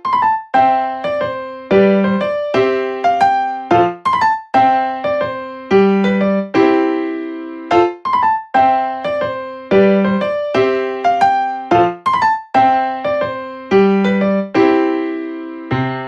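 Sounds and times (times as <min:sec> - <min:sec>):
light piano melody: 0:00.0 - 0:16.0.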